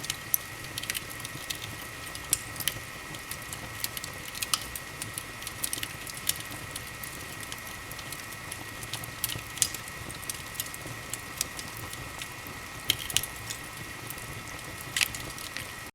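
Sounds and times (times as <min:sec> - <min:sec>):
wood fire crackling: 0:00.0 - 0:15.9.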